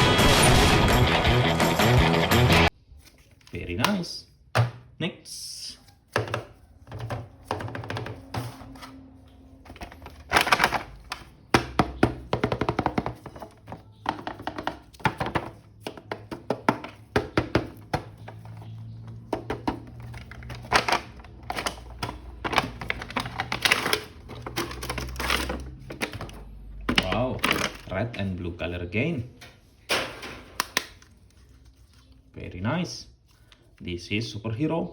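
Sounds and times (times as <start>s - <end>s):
background music: 0.0s - 2.7s
plastic toy handling clicks: 30.6s - 31.2s.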